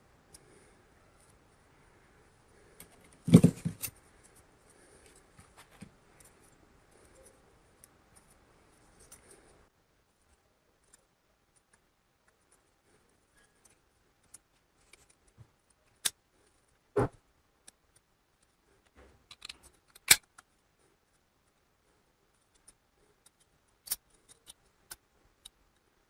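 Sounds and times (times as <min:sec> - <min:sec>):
small hard parts clicking: 0:17.6 - 0:20.5, 0:22.3 - 0:25.9.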